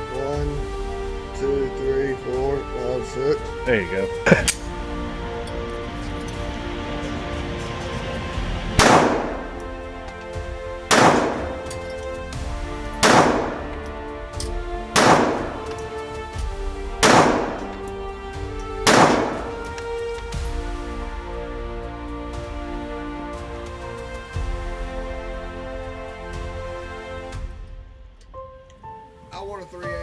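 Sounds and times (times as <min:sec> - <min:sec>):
background music: 0:00.0 - 0:30.0
pistol shots: 0:08.8 - 0:09.7, 0:10.9 - 0:12.0, 0:12.9 - 0:14.1, 0:14.9 - 0:16.0, 0:17.0 - 0:18.0, 0:18.8 - 0:20.0.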